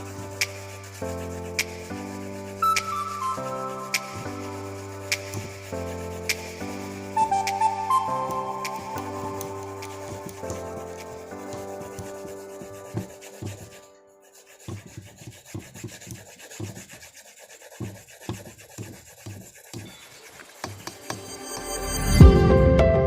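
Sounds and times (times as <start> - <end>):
soft background music: 0.0 - 14.6
pencil scratching on paper: 0.0 - 21.8.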